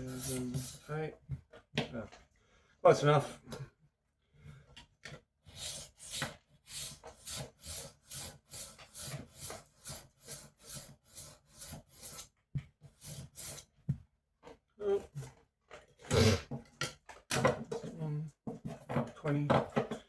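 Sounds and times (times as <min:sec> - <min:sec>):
knife sharpener rasping strokes: 0:00.0 - 0:00.9.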